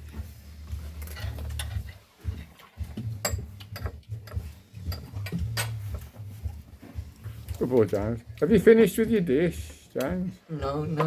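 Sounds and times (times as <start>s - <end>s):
cutlery and dishes clinking: 0.7s - 6.2s.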